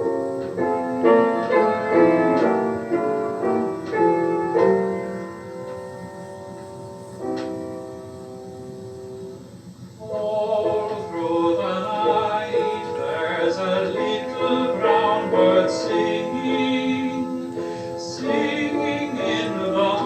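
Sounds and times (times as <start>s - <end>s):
piano accompaniment: 0.0s - 20.0s
piano chord: 0.0s - 20.0s
man singing ballad: 10.0s - 20.0s.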